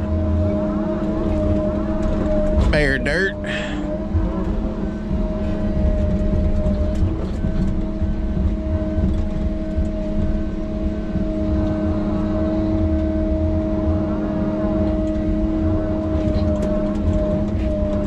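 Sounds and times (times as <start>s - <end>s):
diesel engine under load: 0.0s - 18.0s.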